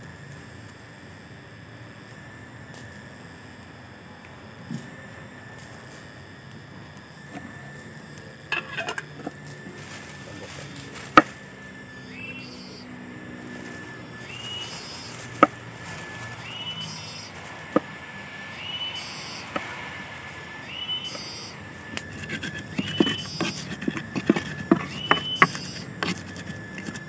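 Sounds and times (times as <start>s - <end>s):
bird whistling call: 12.0s - 12.9s, 14.1s - 15.1s, 16.4s - 17.3s, 18.6s - 19.5s, 20.6s - 21.6s, 22.8s - 23.4s, 24.9s - 25.8s
knife chopping on wooden board: 17.7s - 17.9s, 22.1s - 27.0s
pestle pounding in clay mortar: 22.0s - 27.0s.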